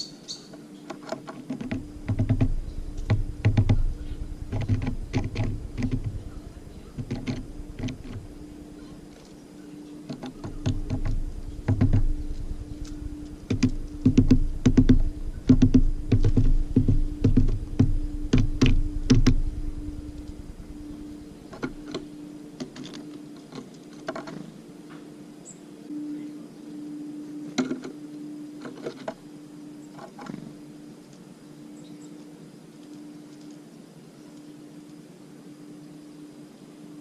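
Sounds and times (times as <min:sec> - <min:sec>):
steady low hum: 0:00.0 - 0:37.0
birds pecking at feeder: 0:00.4 - 0:24.6.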